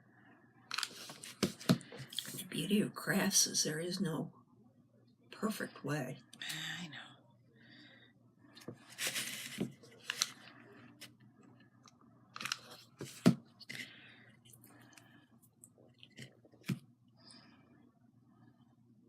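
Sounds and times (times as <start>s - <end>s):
craft materials rustling: 0.7s - 2.1s, 8.6s - 11.2s.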